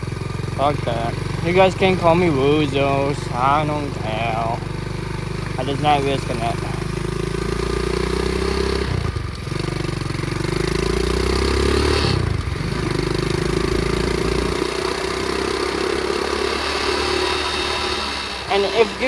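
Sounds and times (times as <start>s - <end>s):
pit bike engine running: 0.0s - 19.0s
humming drone: 13.4s - 19.0s.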